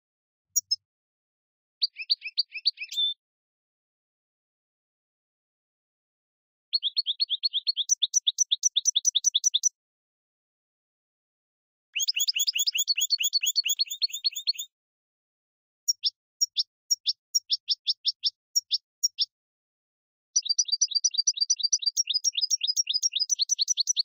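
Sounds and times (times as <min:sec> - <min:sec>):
bird chirping: 0:00.6 - 0:00.8, 0:01.8 - 0:03.2, 0:06.7 - 0:09.8, 0:12.0 - 0:14.7, 0:15.9 - 0:19.3, 0:20.3 - 0:24.0.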